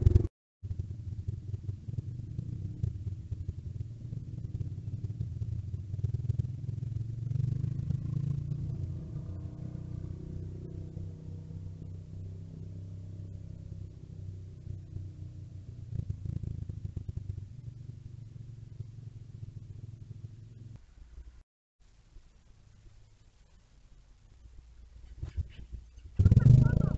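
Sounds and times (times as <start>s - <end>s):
mini bike engine running: 26.2s - 26.9s.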